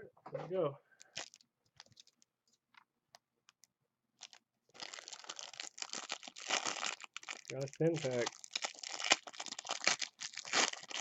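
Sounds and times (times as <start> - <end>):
foil wrapper tearing and crinkling: 1.1 - 2.2, 4.2 - 11.0
foil wrapper rustling: 4.2 - 11.0.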